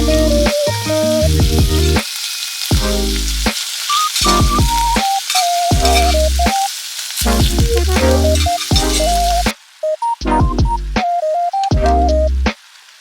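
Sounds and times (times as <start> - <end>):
background music with bass pulses: 0.0 - 2.0, 2.7 - 3.5, 4.2 - 5.0, 7.2 - 9.5, 10.2 - 11.1, 11.7 - 12.5
food sizzling in a pan: 0.0 - 10.2, 12.5 - 13.0.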